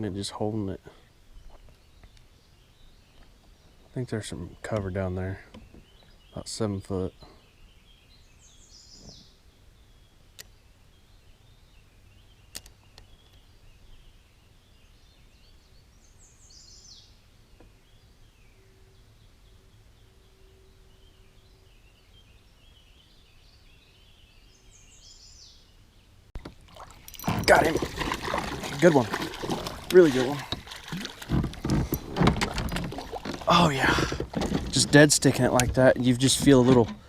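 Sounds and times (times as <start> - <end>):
faint birds twittering: 0.0 - 37.0
small sharp clicks: 12.5 - 13.4.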